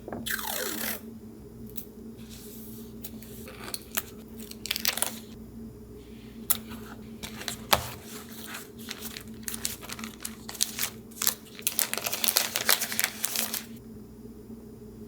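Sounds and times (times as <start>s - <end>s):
paper rustling and crinkling: 2.2s - 5.4s, 6.4s - 13.8s.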